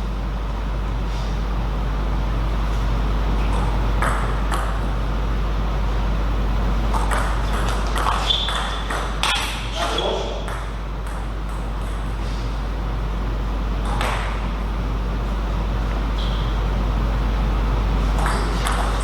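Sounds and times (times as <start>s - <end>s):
low electrical hum: 0.0s - 19.0s
table tennis ball hits: 3.5s - 4.8s, 6.9s - 12.2s, 13.8s - 14.4s, 18.2s - 19.0s.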